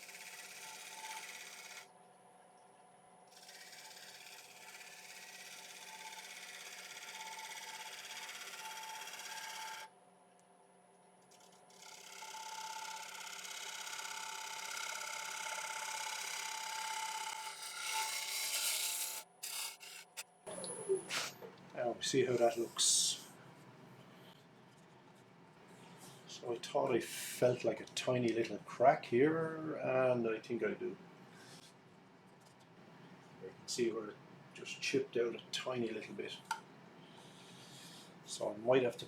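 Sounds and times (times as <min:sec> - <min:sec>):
gouge cutting spinning wood: 0:00.0 - 0:01.8, 0:03.4 - 0:09.9, 0:11.8 - 0:20.2
wood lathe whine: 0:00.0 - 0:01.9, 0:03.3 - 0:09.9, 0:11.4 - 0:20.2.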